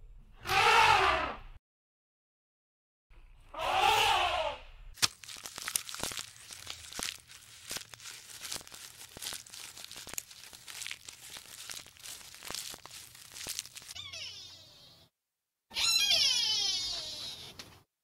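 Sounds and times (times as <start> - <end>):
animal call: 0.4 - 1.4, 3.5 - 4.6, 13.3 - 15.0
leaves and twigs crackling: 5.0 - 14.0.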